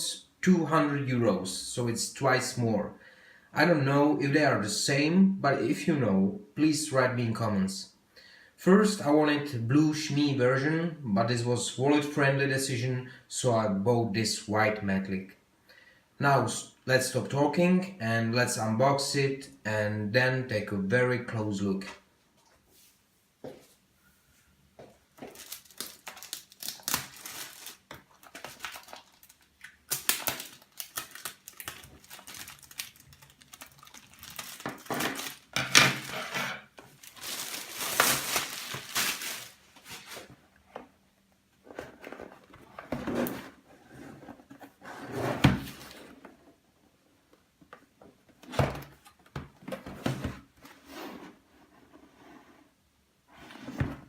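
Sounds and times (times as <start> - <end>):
cardboard and plastic rustling: 25.1 - 40.9, 41.6 - 46.6.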